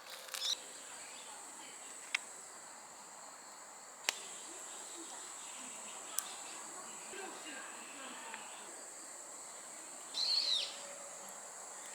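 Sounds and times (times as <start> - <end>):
sharp clicks: 0.0 - 0.6
crickets chirring: 0.0 - 11.9.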